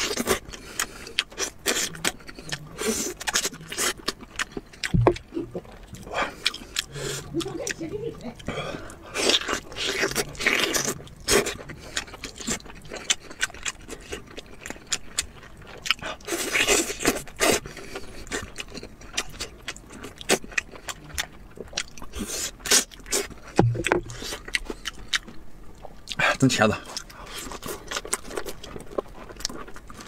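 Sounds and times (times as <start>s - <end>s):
close chewing and biting: 0.0s - 30.0s
mouth clicks and smacks: 1.7s - 7.8s, 23.5s - 25.3s.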